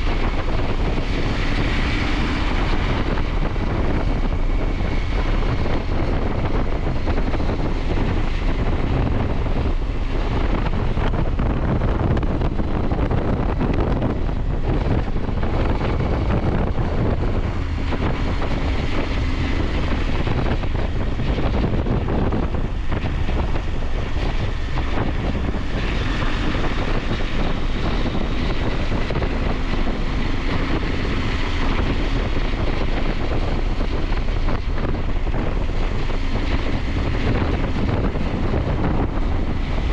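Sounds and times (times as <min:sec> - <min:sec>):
wind noise on microphone: 0:00.0 - 0:39.9.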